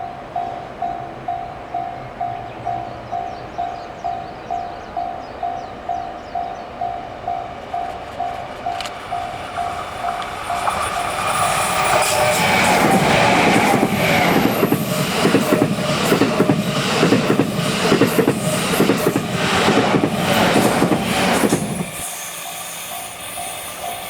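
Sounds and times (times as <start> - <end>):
electric train passing: 0.0 - 24.0
level crossing warning bell: 0.0 - 24.0
wheels clacking over rail joints: 5.6 - 22.0.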